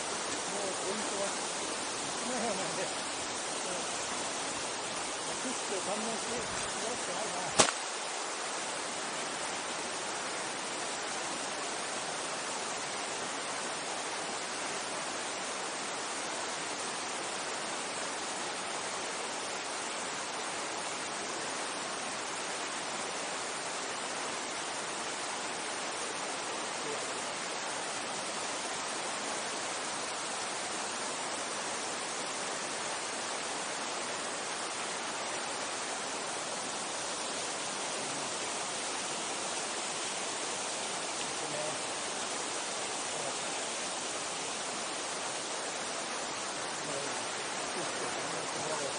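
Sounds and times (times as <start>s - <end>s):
stream rushing: 0.0s - 48.9s
sharp click: 7.6s - 7.8s.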